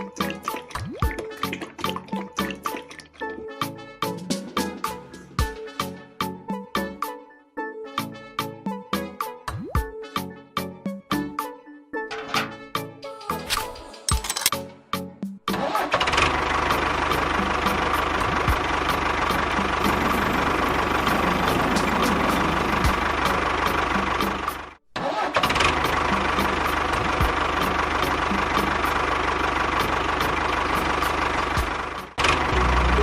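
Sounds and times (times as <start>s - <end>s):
music: 0.0s - 24.8s, 25.4s - 33.0s
small motor whining and ticking: 19.8s - 23.0s.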